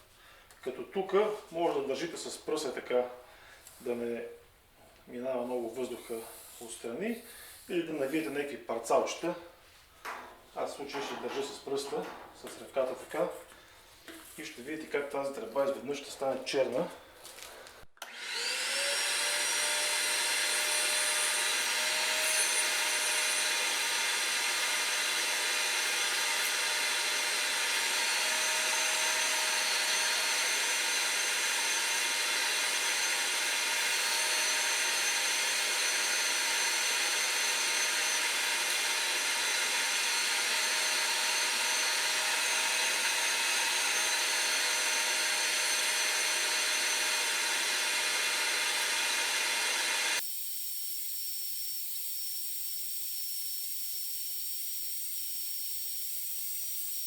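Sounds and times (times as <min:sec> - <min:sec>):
vacuum cleaner running: 0:18.0 - 0:50.2.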